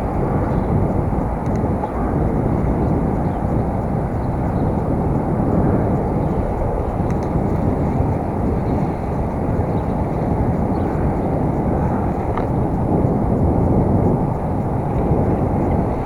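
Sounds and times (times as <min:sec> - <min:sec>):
road rumble: 0:00.0 - 0:16.0
wind rush on microphone: 0:00.0 - 0:16.0.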